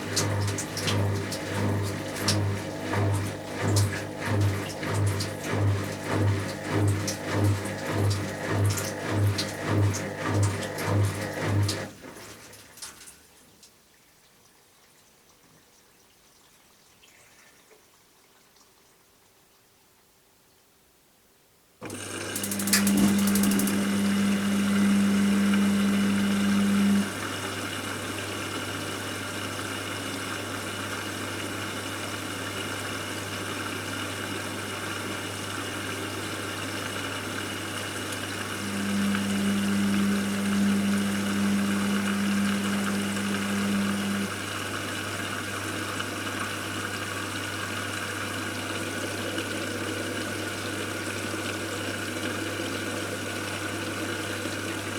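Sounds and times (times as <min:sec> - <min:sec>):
higher motor hum: 0:00.0 - 0:11.9, 0:21.8 - 0:27.4, 0:38.0 - 0:46.0
washing machine humming: 0:00.0 - 0:13.4, 0:21.8 - 0:54.9.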